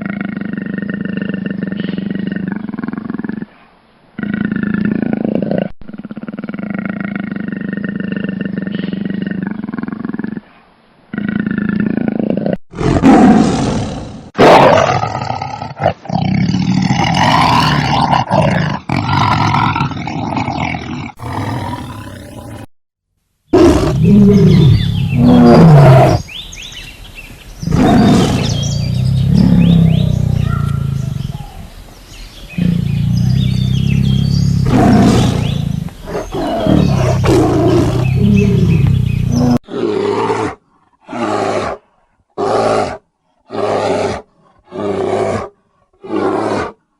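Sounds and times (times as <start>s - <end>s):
big cats roaring and growling: 0.0s - 3.5s, 11.1s - 22.7s, 23.5s - 26.3s, 27.6s - 41.8s, 42.4s - 46.8s.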